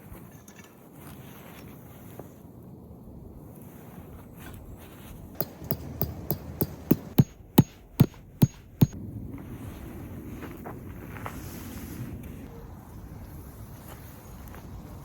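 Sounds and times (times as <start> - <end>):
hammer striking with metallic ring: 5.4 - 9.0.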